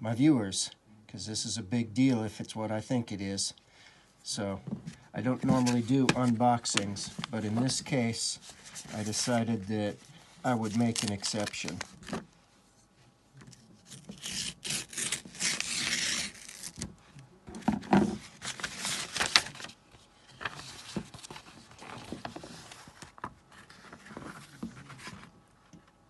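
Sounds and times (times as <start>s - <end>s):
packaging tearing and rustling: 10.6s - 12.2s, 13.8s - 16.9s, 18.2s - 19.8s.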